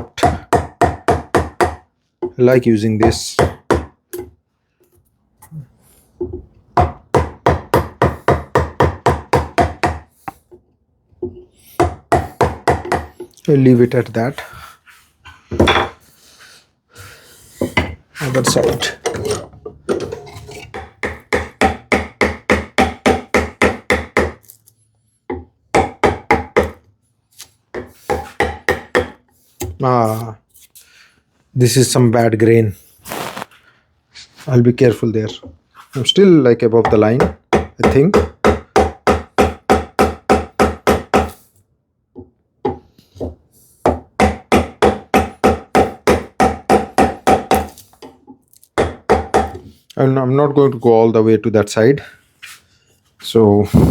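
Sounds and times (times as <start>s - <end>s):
mallet striking chisel into wood: 0.0s - 2.4s, 3.0s - 4.3s, 6.8s - 10.4s, 11.8s - 13.1s, 20.7s - 24.4s, 25.3s - 26.8s, 27.7s - 29.8s, 36.8s - 41.4s, 43.9s - 48.2s, 48.8s - 49.6s.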